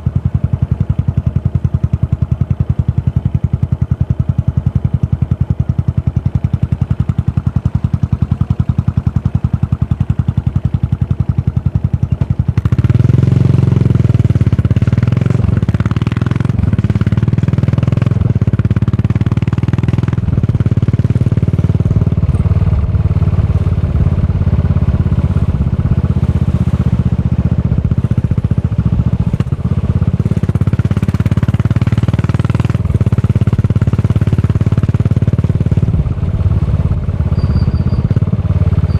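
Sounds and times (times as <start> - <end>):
motorcycle engine: 0.0 - 38.9
wind and road noise: 10.4 - 38.9.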